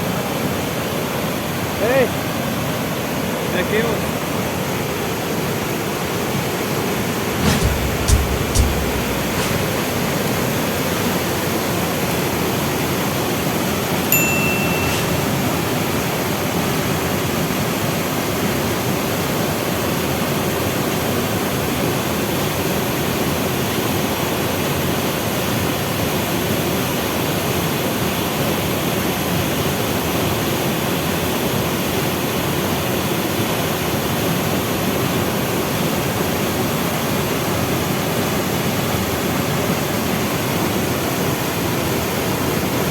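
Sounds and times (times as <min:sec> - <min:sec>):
short high tone: 0:14.1 - 0:15.8.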